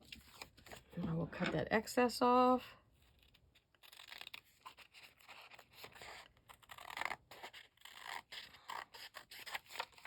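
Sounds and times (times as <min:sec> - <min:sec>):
scissors cutting paper: 0:03.2 - 0:10.0.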